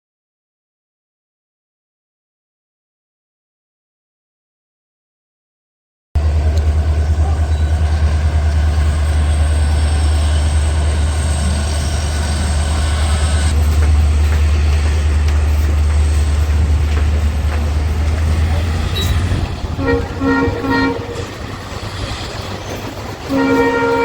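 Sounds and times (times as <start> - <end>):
train locomotive engine rumbling: 6.2 - 24.0.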